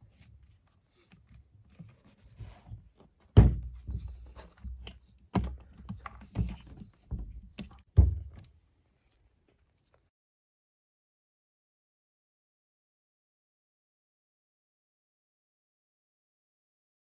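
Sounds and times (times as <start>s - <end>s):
dull thumps and knocks: 2.2s - 8.5s.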